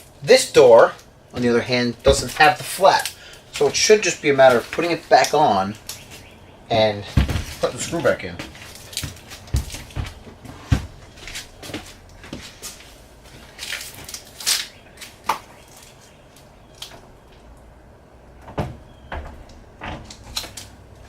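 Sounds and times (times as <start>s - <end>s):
rustling: 0.8s - 17.7s
refrigerator door knocks and clicks: 18.4s - 20.1s.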